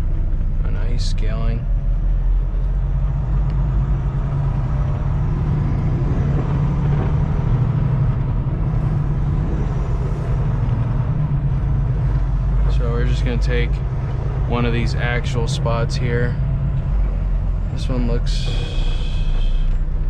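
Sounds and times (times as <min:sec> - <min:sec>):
truck diesel engine drone: 0:00.0 - 0:20.0.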